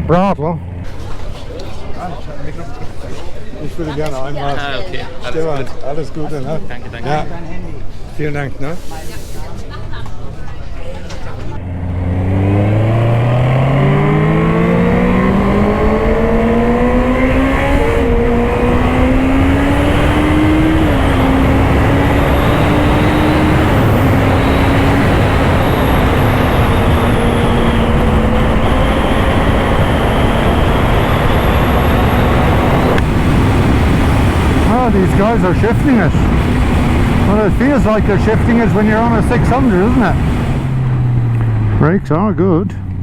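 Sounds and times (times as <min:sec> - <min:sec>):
motorcycle engine accelerating: 0:00.0 - 0:03.4, 0:11.4 - 0:43.0
wind noise: 0:12.5 - 0:41.8.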